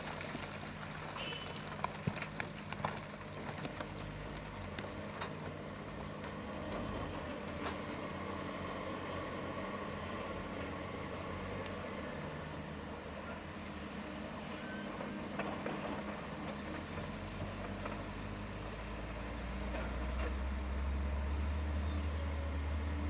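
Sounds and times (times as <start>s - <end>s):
deep engine rumble: 0.0s - 23.0s
heavy machinery diesel engines: 0.0s - 23.0s.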